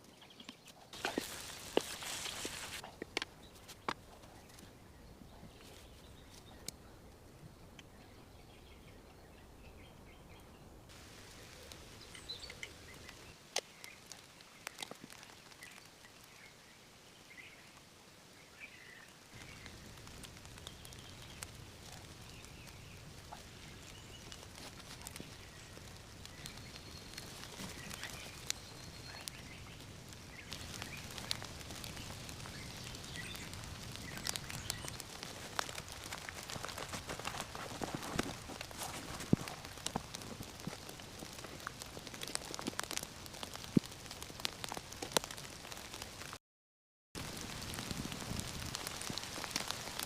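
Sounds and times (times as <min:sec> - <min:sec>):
steady hiss: 0:00.9 - 0:03.9, 0:10.9 - 0:46.3.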